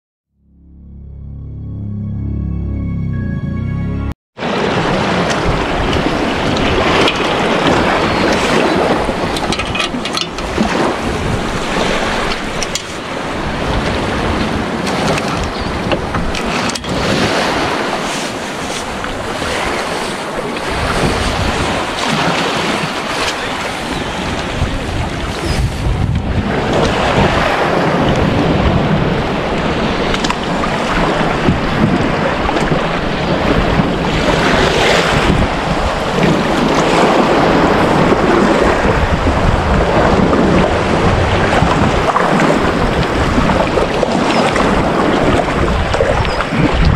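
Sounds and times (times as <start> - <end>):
water washing against boat: 4.4 - 46.9
wind buffeting microphone: 4.4 - 46.9.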